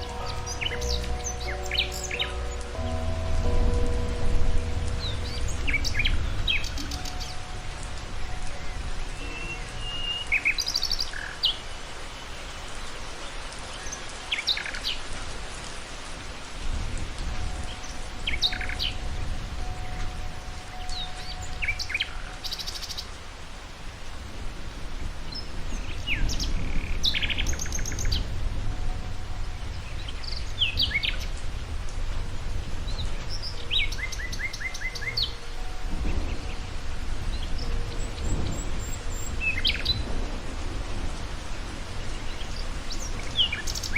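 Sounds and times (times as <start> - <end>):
low rumble: 0.0 - 10.6
songbirds chirping and trilling: 0.0 - 15.2, 16.3 - 23.3, 25.0 - 43.9
steady background hiss: 0.0 - 43.9.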